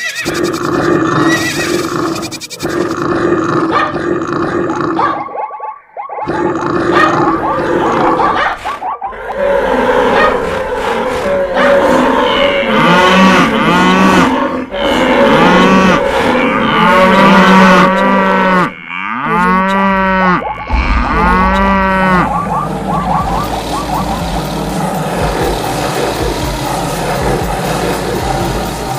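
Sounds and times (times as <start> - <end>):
cattle mooing: 9.2 - 28.6
steady noisy background: 20.7 - 28.9.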